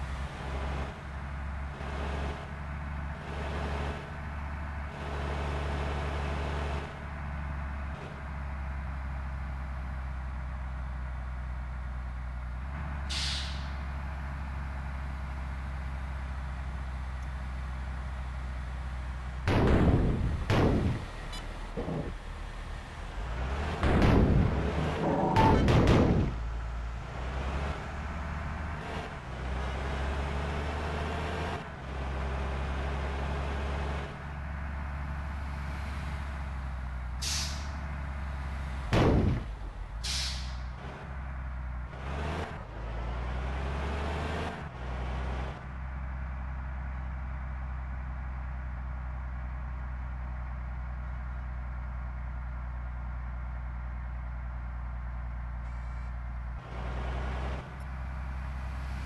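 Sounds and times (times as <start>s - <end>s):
short sharp hisses: 13.1s - 13.8s, 37.2s - 37.7s, 40.0s - 40.6s.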